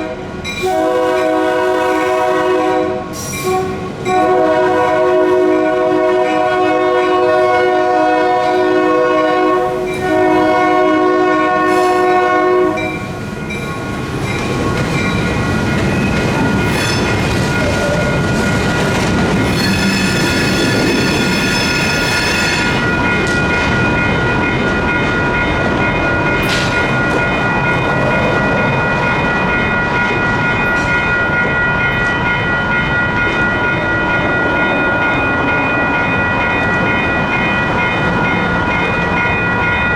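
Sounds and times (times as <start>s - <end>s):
locomotive horn blasts: 0.0s - 13.0s
crossing bells ringing: 0.0s - 39.9s
freight train rumbling: 0.0s - 39.9s
high squeal: 19.5s - 22.8s.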